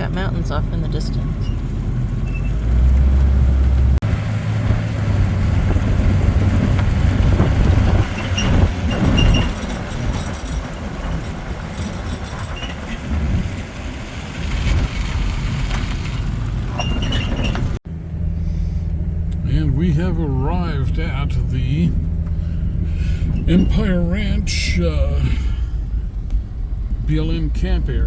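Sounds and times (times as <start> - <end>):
truck engine and road rumble: 0.0 - 28.0
clicks and rattles: 7.4 - 13.5.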